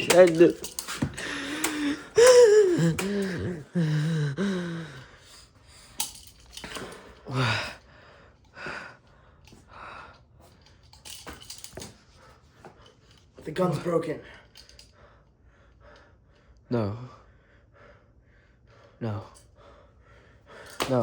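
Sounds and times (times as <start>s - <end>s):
heavy gasping breaths: 0.1s - 10.7s, 14.2s - 21.0s
person crying out: 1.5s - 4.9s.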